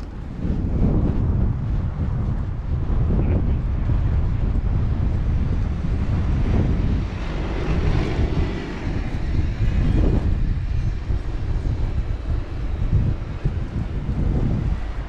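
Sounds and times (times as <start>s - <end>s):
strong wind buffeting microphone: 0.0s - 15.0s
vehicle passing through snow: 4.6s - 15.0s.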